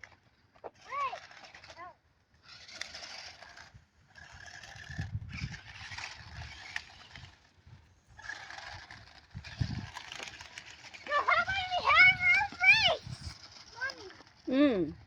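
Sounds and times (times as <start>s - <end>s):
wheels scraping over sand: 0.0s - 14.6s
toy truck electric motor whining: 0.0s - 14.7s.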